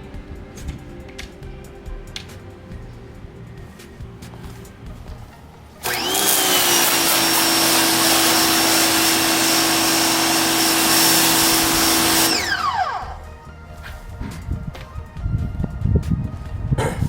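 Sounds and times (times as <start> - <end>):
pressure washer motor humming: 0.0 - 13.4
water spray hissing: 5.8 - 12.6.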